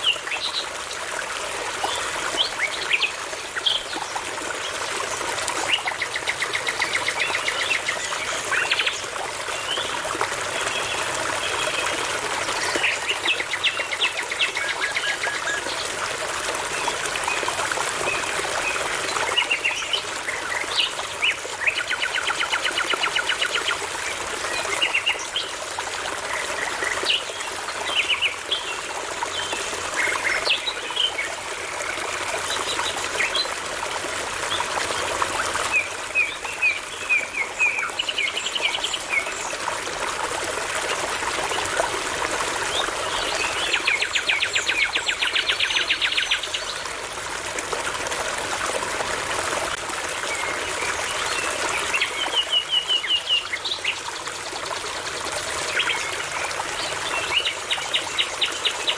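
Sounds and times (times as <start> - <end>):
brook babbling: 0.0 - 58.9.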